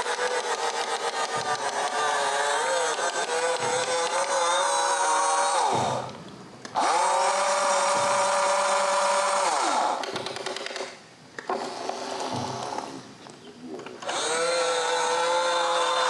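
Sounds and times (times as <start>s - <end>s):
electric motors whining: 0.0s - 13.2s, 13.8s - 16.0s.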